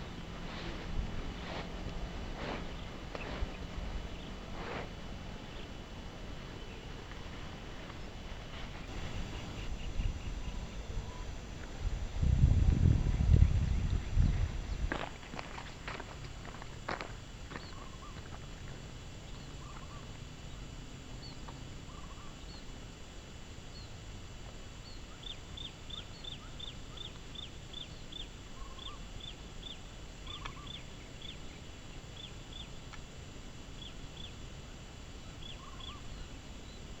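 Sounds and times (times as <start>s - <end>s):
low outdoor rush: 0.0s - 9.9s
small birds chirping: 0.0s - 11.2s, 24.8s - 31.6s.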